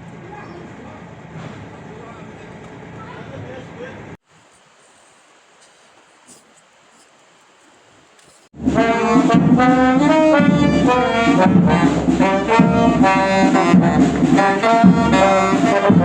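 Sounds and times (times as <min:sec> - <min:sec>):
loud brass music: 0:08.6 - 0:16.0.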